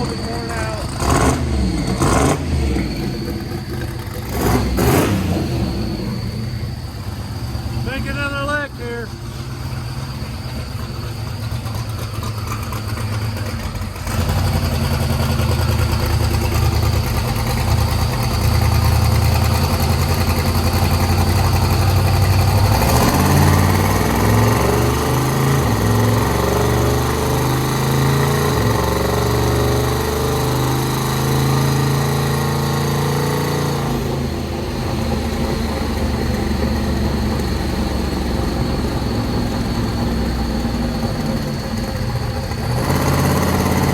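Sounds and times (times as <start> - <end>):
turbo rush: 0.0 - 24.8
car engine on dyno: 0.0 - 43.9.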